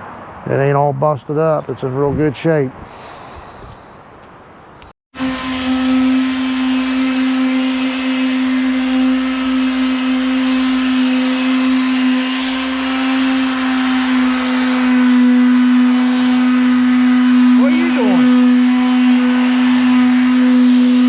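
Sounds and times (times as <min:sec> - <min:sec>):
electric motor humming: 0:05.2 - 0:21.0.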